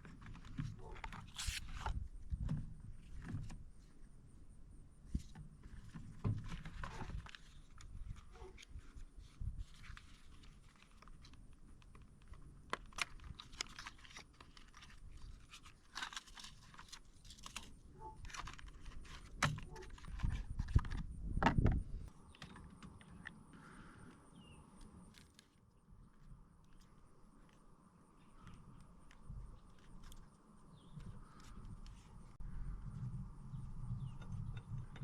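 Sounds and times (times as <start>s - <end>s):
low rumble: 31.8s - 35.0s.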